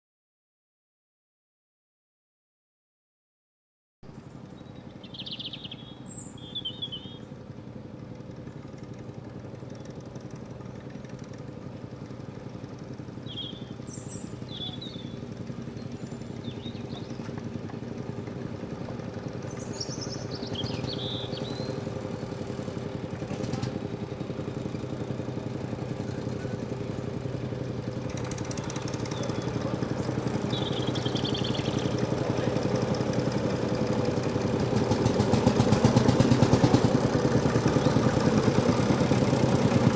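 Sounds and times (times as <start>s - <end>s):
tractor engine running: 4.1s - 39.9s
birds chirping: 4.3s - 7.5s, 11.9s - 23.2s, 24.1s - 34.5s, 37.4s - 38.7s.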